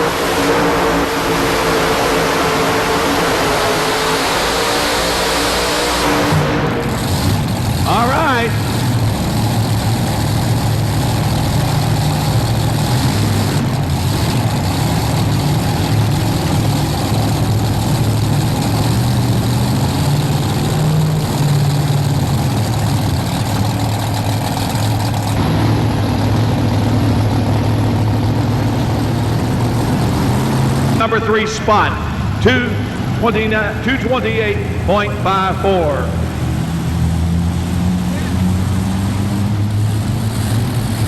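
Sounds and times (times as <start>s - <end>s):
tractor engines humming: 0.0s - 41.0s.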